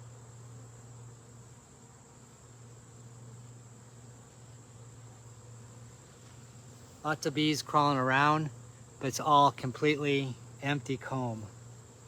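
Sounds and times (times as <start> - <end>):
honeybee colony humming: 0.0 - 12.0.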